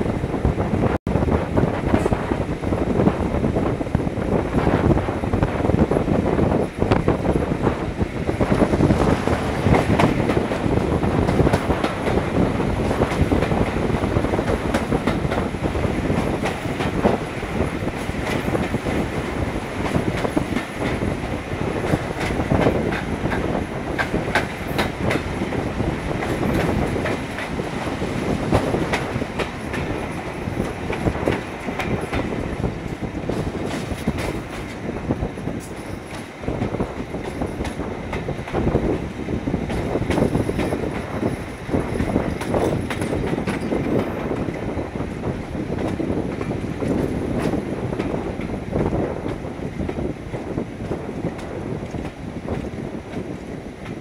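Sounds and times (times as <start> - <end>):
train running rumble: 0.0 - 54.0
wheels clicking over rail joints: 8.4 - 39.0, 39.6 - 44.8.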